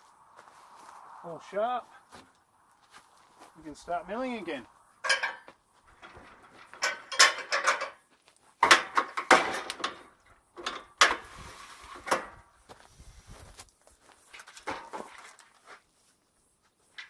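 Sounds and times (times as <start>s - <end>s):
metal clanks and rattles of tools: 5.0s - 12.4s, 14.3s - 15.6s.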